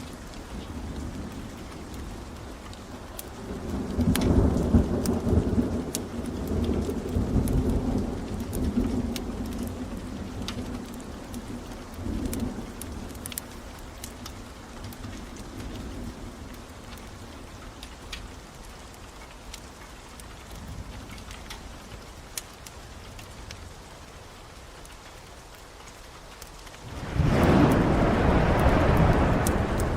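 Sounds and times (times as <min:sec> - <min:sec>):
sharp crackles: 0:00.0 - 0:29.9
steady rain: 0:00.0 - 0:29.9
rolling thunder: 0:26.8 - 0:29.9.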